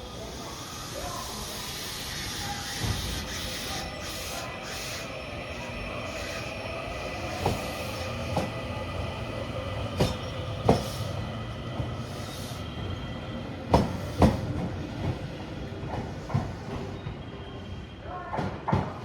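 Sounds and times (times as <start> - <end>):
train running hum and whine: 0.0 - 19.0.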